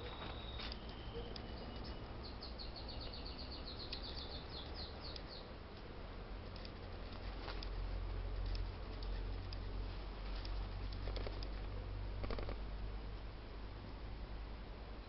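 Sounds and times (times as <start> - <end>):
small bird chirping: 0.0 - 5.5.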